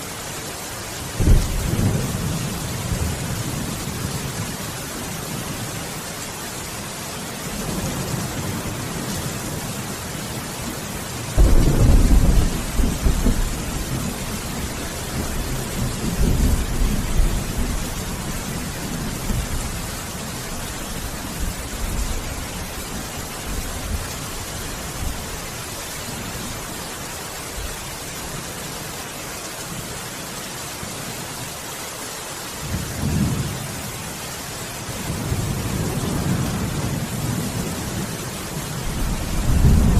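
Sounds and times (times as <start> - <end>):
heavy rain hissing: 0.0 - 39.9
faint rumble of thunder: 1.1 - 4.6, 11.3 - 24.1, 34.9 - 39.9
thunder clap: 11.4 - 14.0.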